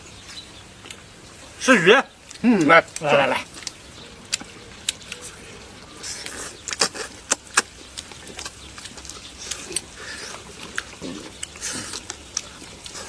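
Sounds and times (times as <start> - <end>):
eating clicks and smacks: 6.2 - 13.0.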